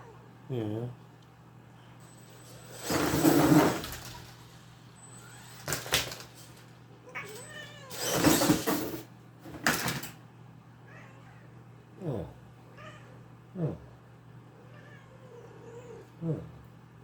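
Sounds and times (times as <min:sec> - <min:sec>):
cat meowing and yowling: 0:07.1 - 0:08.1.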